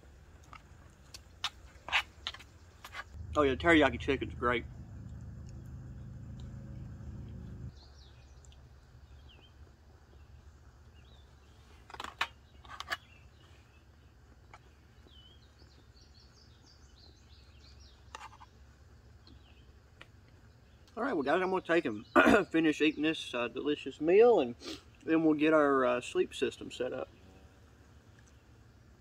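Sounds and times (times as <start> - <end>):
songbirds chirping: 0.0 - 29.0
low hum: 3.1 - 7.8.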